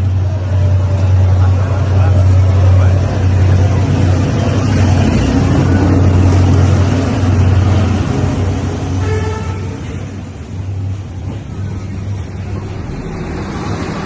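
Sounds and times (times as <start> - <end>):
diesel train passing: 0.0 - 14.0
train horn tone: 8.9 - 10.0.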